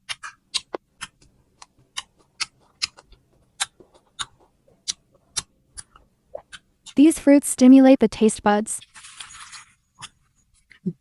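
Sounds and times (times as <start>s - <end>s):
crunchy chewing: 0.1s - 7.0s.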